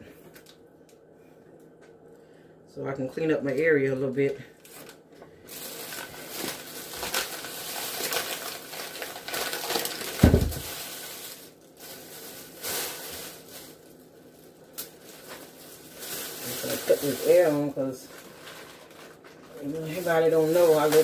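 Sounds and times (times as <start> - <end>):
items rustling and clattering: 4.6 - 21.0
loud low thump: 10.2 - 10.7.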